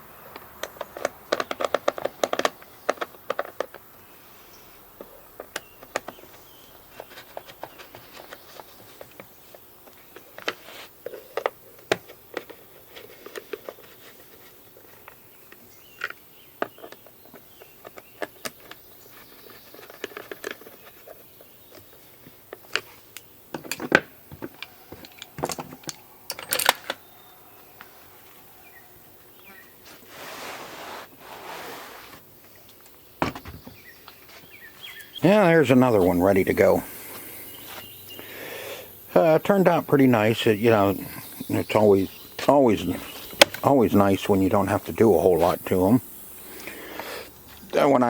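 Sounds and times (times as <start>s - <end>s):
objects being handled clicking: 0.3s - 3.9s, 6.9s - 27.0s
rustling hiss: 7.6s - 11.2s, 29.4s - 32.8s.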